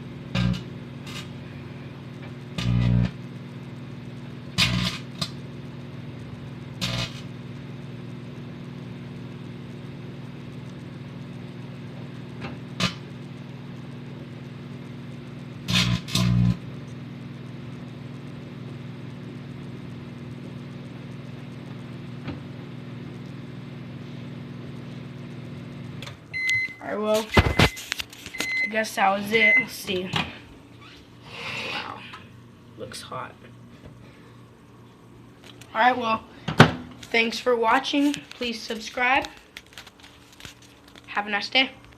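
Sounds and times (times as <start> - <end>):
microwave oven humming: 0.0 - 41.9
tin foil arcing with crackling pops: 0.3 - 1.4, 4.6 - 5.4, 6.8 - 7.3, 27.1 - 28.4, 36.9 - 41.2.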